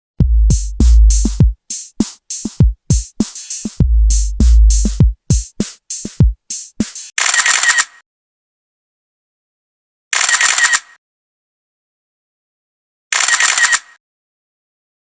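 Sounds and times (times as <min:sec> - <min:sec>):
deep bass drum booms: 0:00.2 - 0:01.6, 0:02.6 - 0:05.5
short sharp drum hits: 0:00.2 - 0:07.1.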